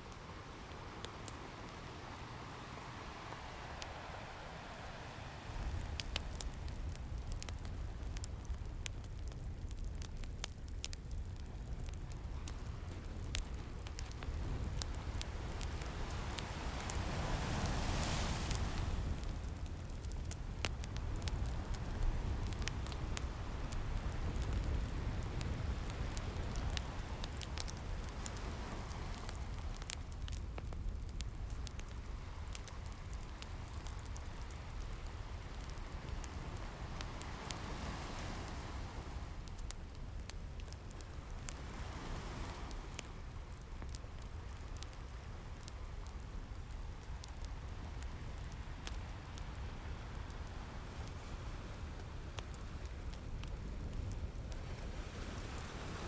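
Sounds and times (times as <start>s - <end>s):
ocean waves: 0.0s - 8.5s, 12.4s - 20.2s, 21.1s - 30.4s, 31.9s - 39.7s, 41.1s - 43.2s, 54.6s - 56.0s
fire crackling and popping: 0.0s - 56.0s.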